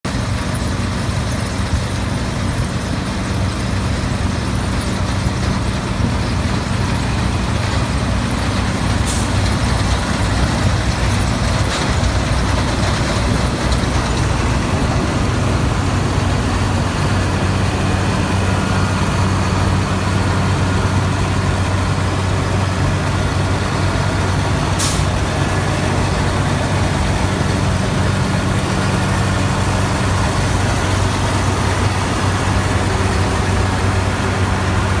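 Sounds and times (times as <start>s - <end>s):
engine droning: 0.1s - 35.0s
machine rushing noise: 6.0s - 35.0s.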